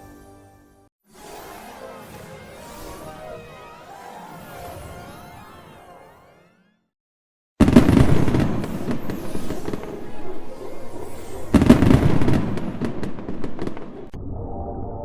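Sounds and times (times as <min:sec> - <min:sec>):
fireworks bangs: 0:07.6 - 0:14.1
fireworks crackling: 0:07.6 - 0:14.1.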